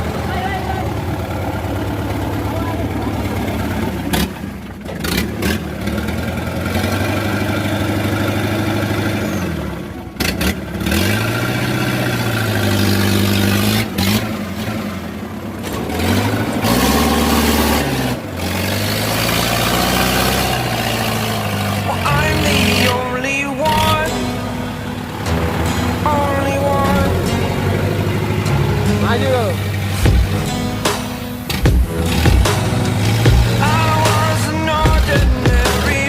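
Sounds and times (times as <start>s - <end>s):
engine revving: 0.0s - 36.0s
sharp knocks: 30.0s - 36.0s.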